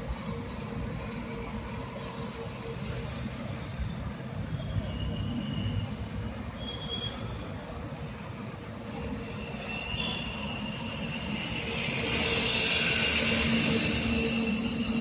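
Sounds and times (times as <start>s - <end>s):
train rumbling on rails: 0.0s - 15.0s
high wheel squeal: 4.5s - 7.6s, 9.2s - 15.0s.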